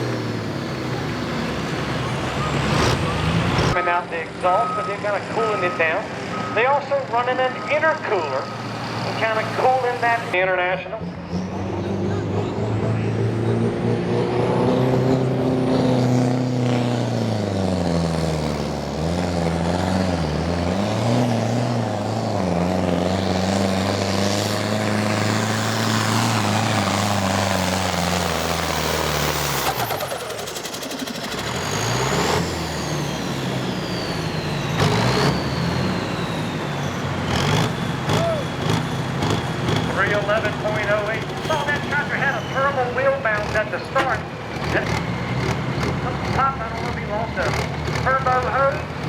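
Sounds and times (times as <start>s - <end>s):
high turbo whine: 0.0s - 48.9s
diesel tractor engine under load: 0.0s - 49.0s
announcer speaking: 3.7s - 11.1s, 39.9s - 45.0s, 46.0s - 48.9s.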